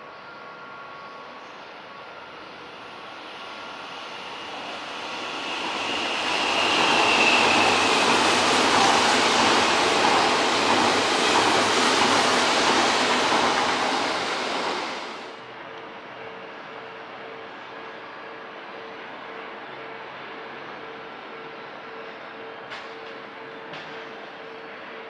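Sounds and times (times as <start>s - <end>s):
train high whine: 0.0s - 25.0s
train wheels rumbling on rails: 2.7s - 15.4s.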